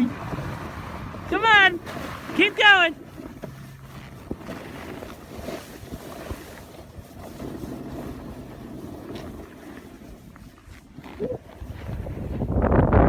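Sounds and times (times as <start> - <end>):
wind rushing over microphone: 0.0 - 3.4, 4.2 - 13.0.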